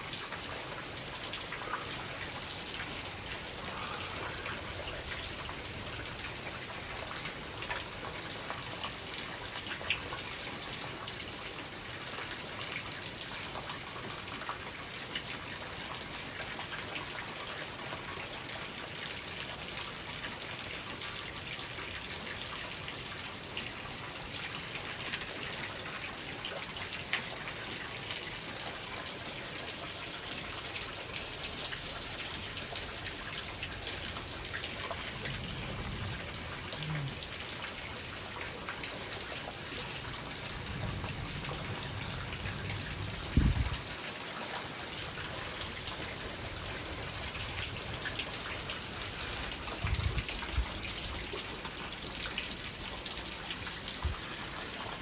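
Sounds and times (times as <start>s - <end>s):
heavy rain hissing: 1.6s - 5.3s, 33.7s - 37.8s
distant thunder rumbles: 34.7s - 37.4s, 40.4s - 43.8s.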